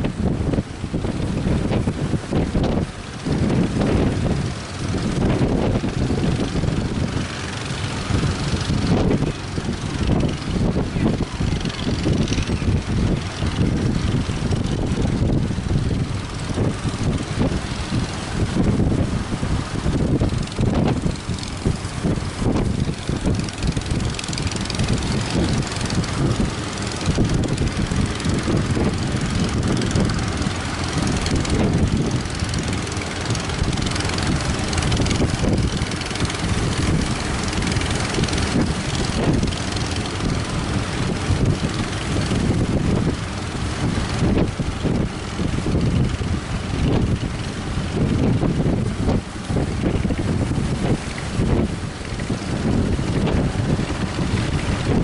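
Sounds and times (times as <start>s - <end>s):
boat engines running: 0.0s - 55.0s
wind buffeting microphone: 0.0s - 55.0s.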